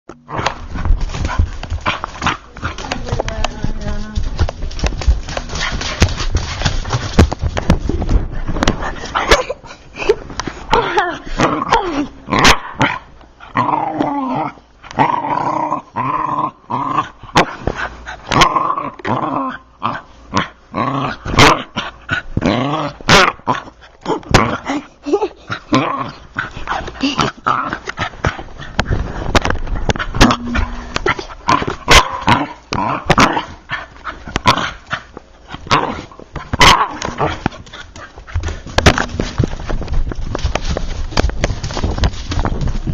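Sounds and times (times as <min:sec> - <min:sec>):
dog growling and barking: 0:00.1 - 0:02.9, 0:10.8 - 0:28.8, 0:29.6 - 0:39.3.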